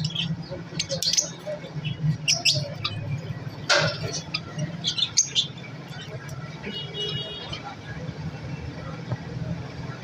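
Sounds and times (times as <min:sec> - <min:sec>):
cage birds chirping: 0:00.0 - 0:10.0.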